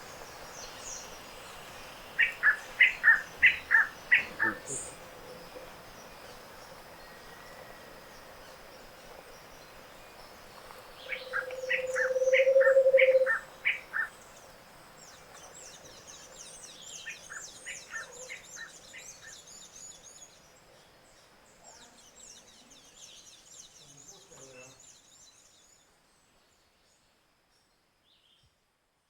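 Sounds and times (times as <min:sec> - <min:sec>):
low rapid hollow bird trill: 0:00.0 - 0:17.7.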